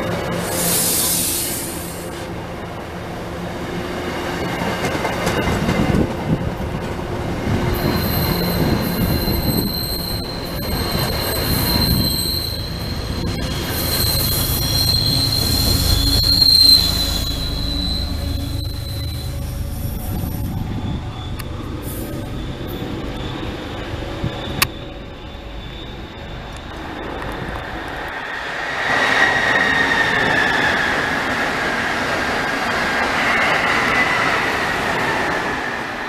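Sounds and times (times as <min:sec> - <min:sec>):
diesel locomotive rumble: 0:05.4 - 0:28.1
high wheel squeal: 0:07.4 - 0:31.4.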